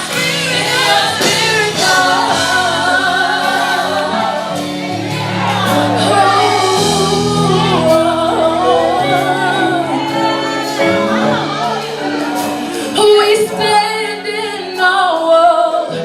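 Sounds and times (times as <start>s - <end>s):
singers ornamented vocal line: 0.0s - 16.0s
sustained low chords: 2.1s - 12.9s.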